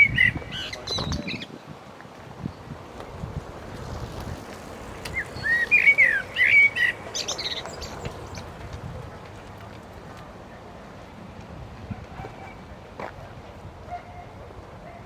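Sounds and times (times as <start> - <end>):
songbird chirping: 0.0 - 1.6, 3.8 - 8.8.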